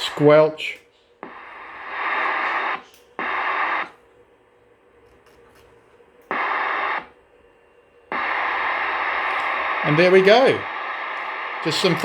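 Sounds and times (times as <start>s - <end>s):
radio static hissing: 0.0s - 4.0s, 6.3s - 7.2s, 8.1s - 12.0s.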